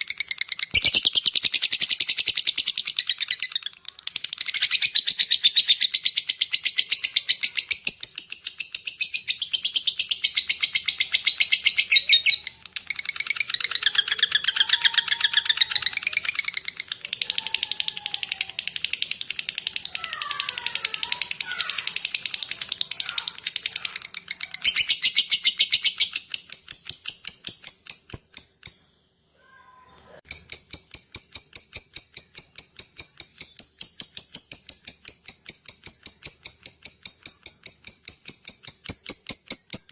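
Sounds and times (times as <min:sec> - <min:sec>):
lovebird chattering shrill ticks: 0:00.0 - 0:28.9, 0:30.3 - 0:39.9.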